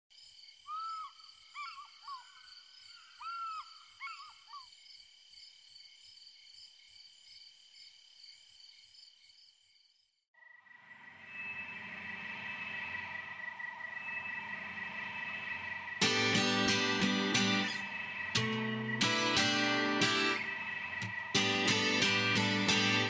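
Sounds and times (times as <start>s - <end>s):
high-pitched drone: 10.8s - 23.0s
music: 15.4s - 23.0s.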